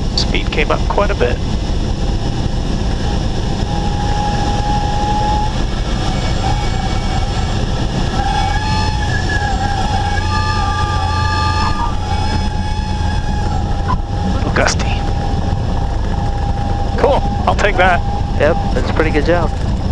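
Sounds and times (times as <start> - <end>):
airflow rushing: 0.0 - 19.9
airplane engine idling: 0.0 - 19.9
reedy stall warning horn: 3.7 - 14.8.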